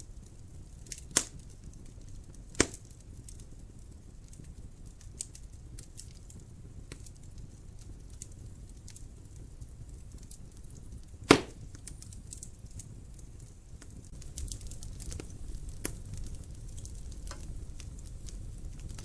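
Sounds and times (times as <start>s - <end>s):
wood fire crackling: 0.0s - 19.0s
loud sharp pop from fire: 0.8s - 1.5s, 2.5s - 3.4s, 11.2s - 12.5s, 13.8s - 17.9s.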